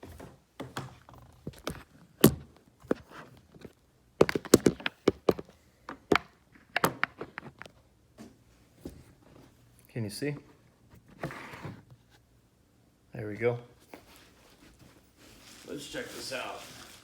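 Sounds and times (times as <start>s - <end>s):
packaging knocks taps and rustles: 1.5s - 7.6s.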